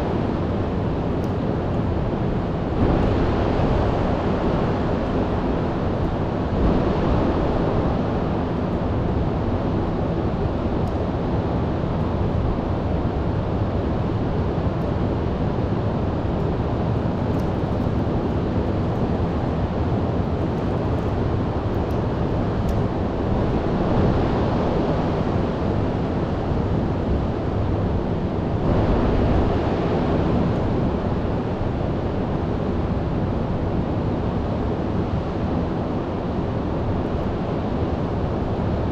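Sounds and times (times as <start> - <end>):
wind on microphone: 0.0 - 38.9
storm surf breaking: 2.6 - 10.8.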